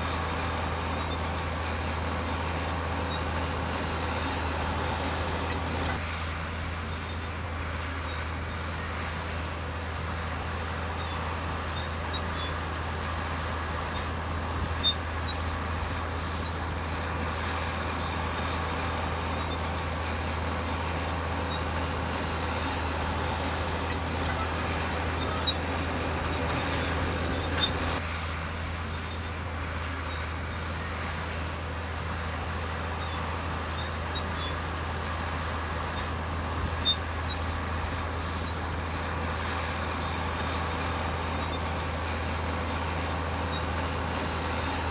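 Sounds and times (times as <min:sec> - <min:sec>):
bulldozer diesel engine running: 0:00.0 - 0:44.9.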